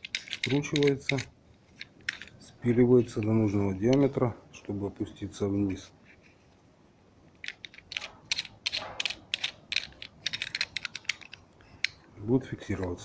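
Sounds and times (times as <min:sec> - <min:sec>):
metallic clicks of parts handled: 0:00.0 - 0:04.2, 0:07.3 - 0:13.0.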